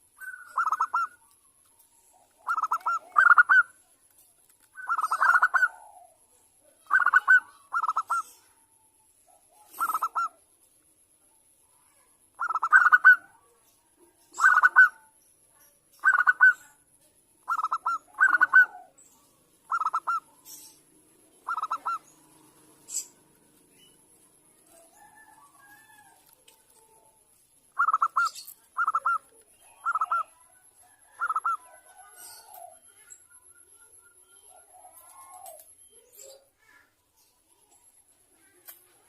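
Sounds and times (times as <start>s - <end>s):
doves cooing: 0.0s - 3.8s, 4.7s - 8.6s, 9.3s - 10.4s, 12.4s - 13.4s, 14.3s - 15.0s, 17.4s - 33.6s, 34.5s - 36.4s.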